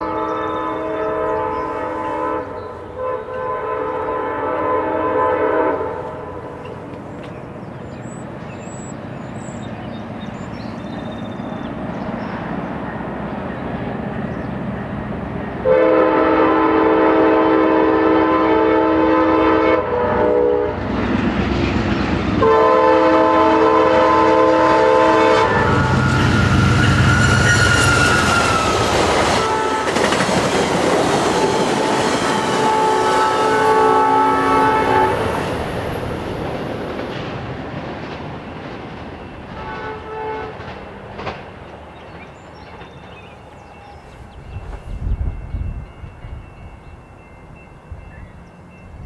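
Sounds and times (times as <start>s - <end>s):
train air horn blasts: 0.0s - 6.6s, 15.6s - 20.9s, 22.4s - 30.2s, 31.4s - 35.6s, 39.5s - 40.8s
rumble of approaching train: 0.0s - 49.0s.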